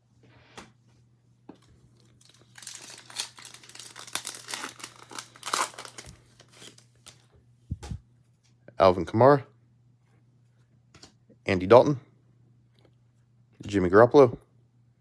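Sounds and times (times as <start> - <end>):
plastic wrapper torn and crinkled: 2.0 - 7.2.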